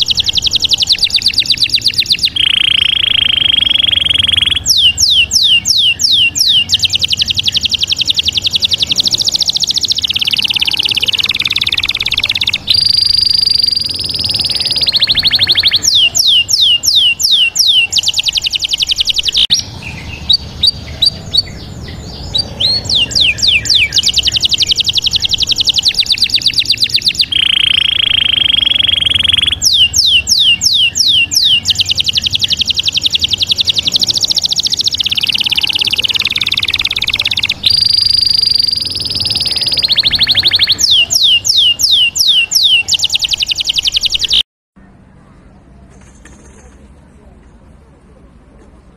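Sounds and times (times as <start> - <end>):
bird song with chirps and trills: 0.0 - 47.0.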